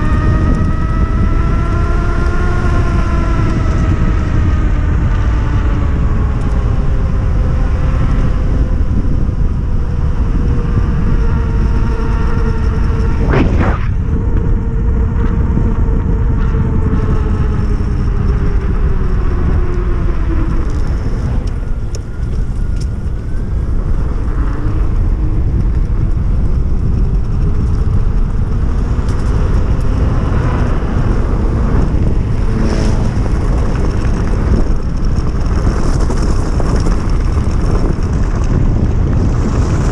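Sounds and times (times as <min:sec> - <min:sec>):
wind rumble on microphone: 0:00.0 - 0:39.9
electric motor whining: 0:06.0 - 0:34.8.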